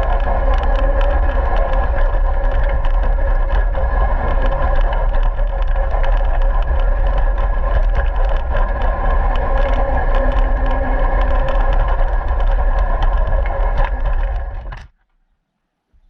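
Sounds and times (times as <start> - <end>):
small clicks and rattles: 0.0 - 15.2.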